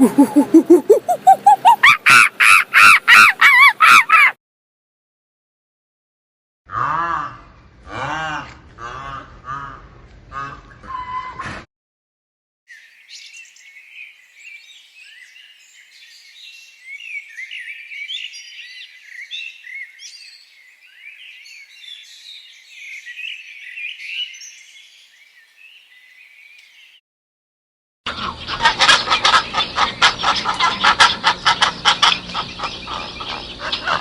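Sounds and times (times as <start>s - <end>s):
small birds chirping: 0.0s - 1.9s, 12.7s - 27.0s, 28.2s - 34.0s.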